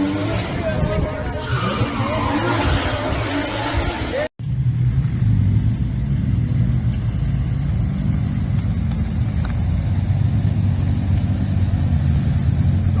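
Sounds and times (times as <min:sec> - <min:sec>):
car engine running: 0:04.1 - 0:13.0.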